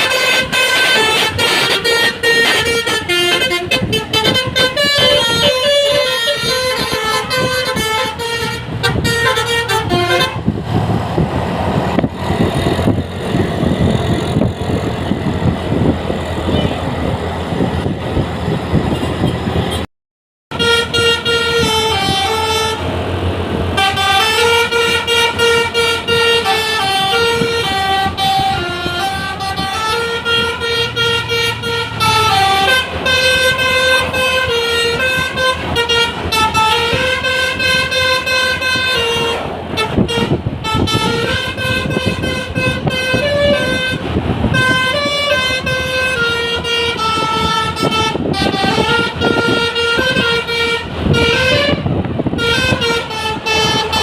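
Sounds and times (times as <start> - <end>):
bus horn playing melody: 0.0 - 10.9, 11.8 - 17.2, 18.8 - 19.9, 20.5 - 54.0
loud noisy rumble: 0.0 - 19.9, 20.5 - 54.0.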